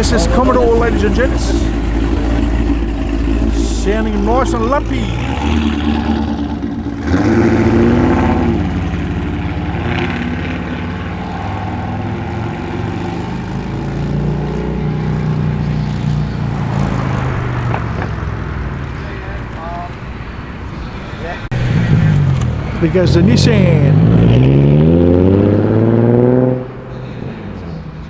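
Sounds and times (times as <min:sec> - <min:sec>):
car engine revving and driving off: 0:00.0 - 0:28.0.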